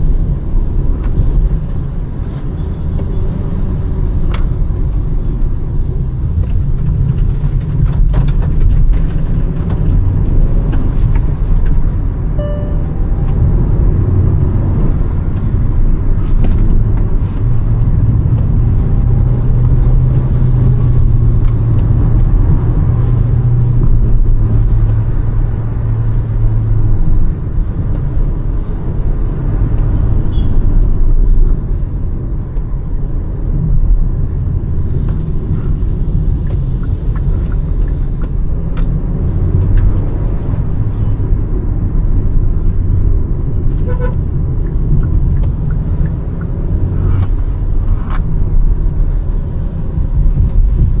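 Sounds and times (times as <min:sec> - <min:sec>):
car engine drone while driving: 0:00.0 - 0:51.0
tyre road rumble: 0:00.0 - 0:51.0.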